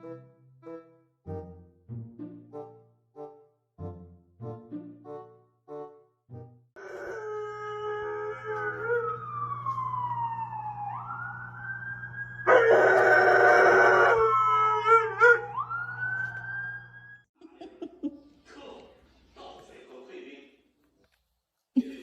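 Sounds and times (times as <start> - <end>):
dog howling: 6.8 - 9.4, 12.4 - 16.4
siren wailing: 6.8 - 17.3.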